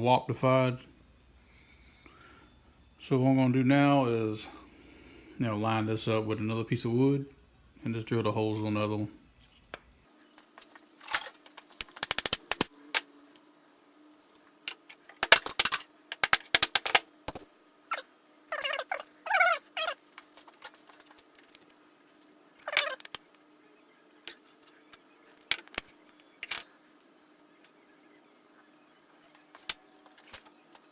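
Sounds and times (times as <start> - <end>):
wooden pieces clicking and knocking: 11.7 - 13.1, 14.7 - 17.1, 22.6 - 23.2
short wavering squeaks: 17.9 - 20.8, 22.6 - 23.1.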